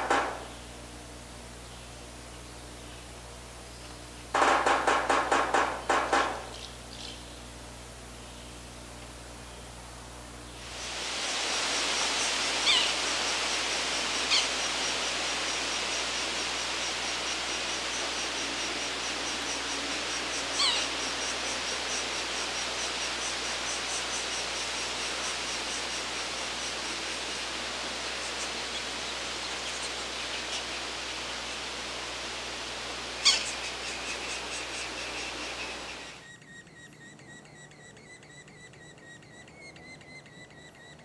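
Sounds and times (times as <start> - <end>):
steady outdoor hiss: 0.0 - 41.0
downward-sliding bird calls: 11.3 - 41.0
thin high bird peeps: 12.2 - 13.2, 14.2 - 26.8, 33.2 - 41.0.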